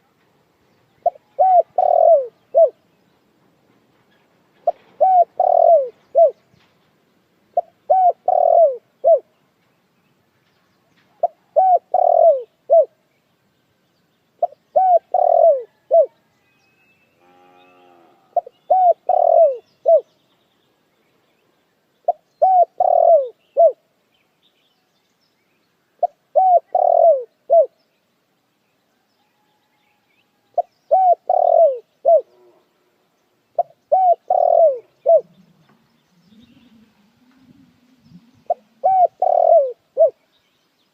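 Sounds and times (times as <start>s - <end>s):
dove cooing: 1.0s - 2.8s, 4.6s - 6.4s, 7.6s - 9.3s, 11.2s - 12.9s, 14.4s - 16.2s, 18.3s - 20.1s, 22.1s - 23.8s, 26.0s - 27.8s, 30.6s - 32.6s, 33.6s - 40.2s.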